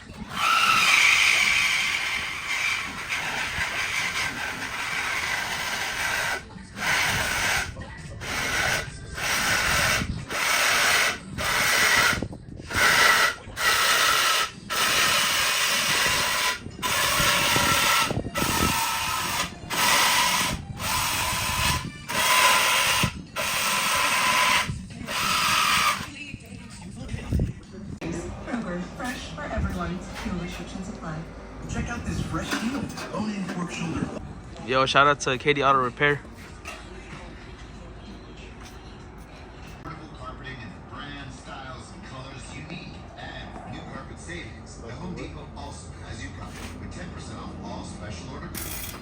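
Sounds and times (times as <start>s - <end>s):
hissing rattling shop tools: 0.0s - 27.5s, 31.8s - 39.9s, 48.5s - 49.0s.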